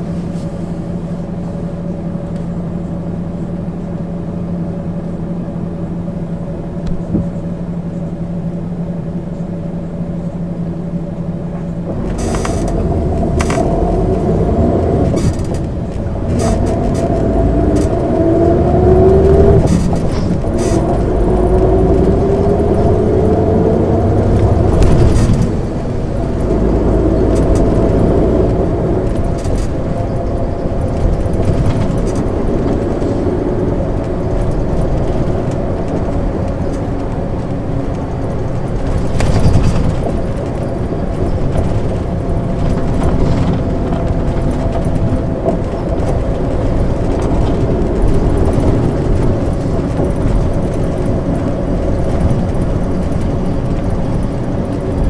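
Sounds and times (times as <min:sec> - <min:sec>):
bus diesel engine: 0:00.0 - 0:55.0
knocks and rattles: 0:24.2 - 0:55.0.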